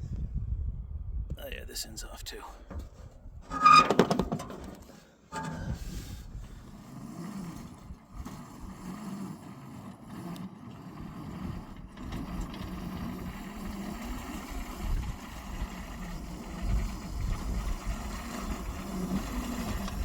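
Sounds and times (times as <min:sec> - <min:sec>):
small engine running: 0:05.8 - 0:20.0.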